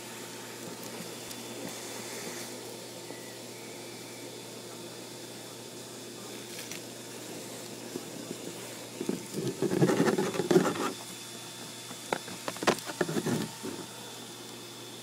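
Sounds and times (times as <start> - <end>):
vacuum motor humming: 0.0 - 15.0
sharp clicks and knocks: 11.9 - 13.9.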